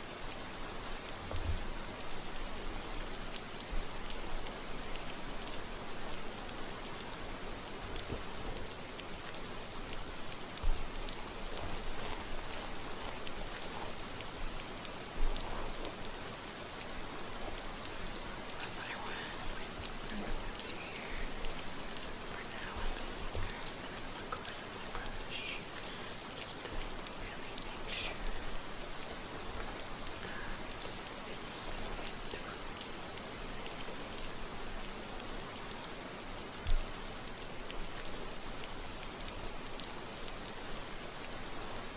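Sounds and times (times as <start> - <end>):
steady rain: 0.0 - 41.9.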